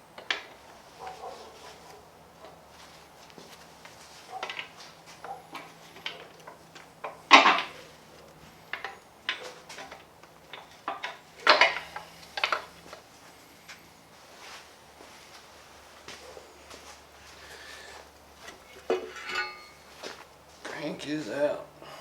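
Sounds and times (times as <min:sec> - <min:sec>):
metal engine parts clanking: 0:04.4 - 0:13.0, 0:18.4 - 0:20.2.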